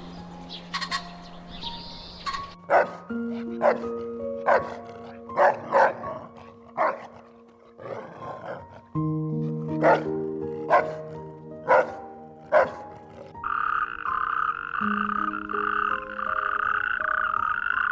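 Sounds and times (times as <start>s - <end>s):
high chirps: 0.0s - 2.7s, 13.5s - 17.9s
soft background music: 0.0s - 17.9s.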